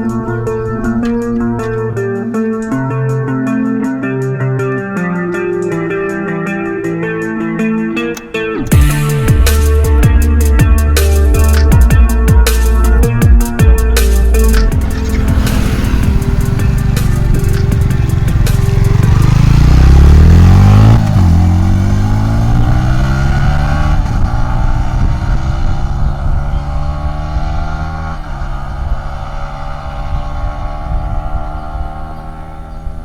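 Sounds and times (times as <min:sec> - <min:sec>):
motorcycle engine passing by: 0:14.6 - 0:33.0.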